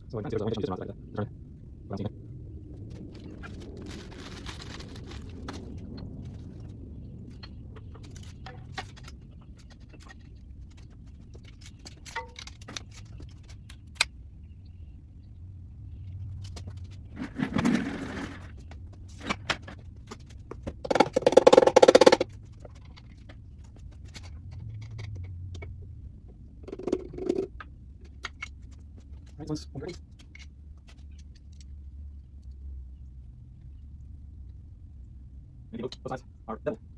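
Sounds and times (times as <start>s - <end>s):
metal tools clinking and scraping: 11.3s - 13.2s
rapid metal rattle: 20.8s - 22.9s.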